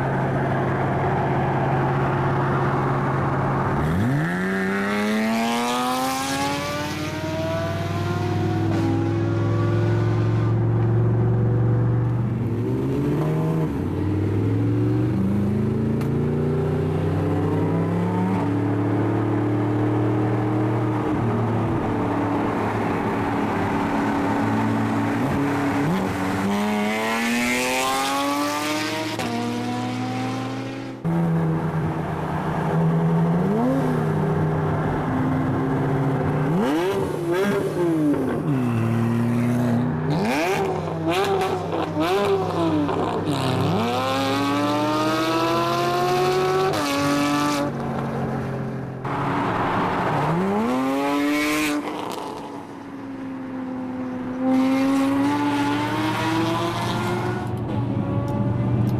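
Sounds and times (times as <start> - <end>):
car engine revving and accelerating: 0.0 - 52.8, 53.7 - 58.9.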